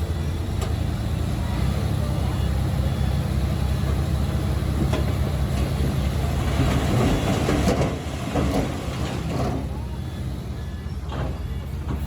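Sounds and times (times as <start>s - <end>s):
diesel engine hum: 0.0s - 12.0s
steel tracks clanking: 3.9s - 12.0s.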